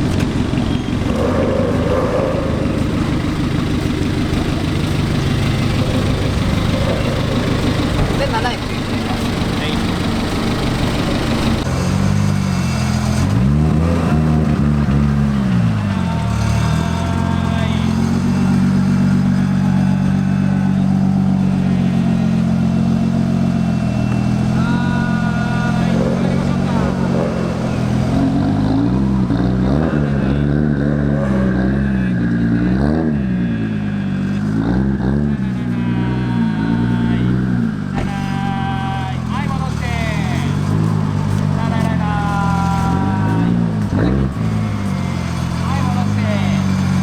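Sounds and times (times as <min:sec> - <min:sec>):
car engine idling and revving: 0:00.0 - 0:47.0.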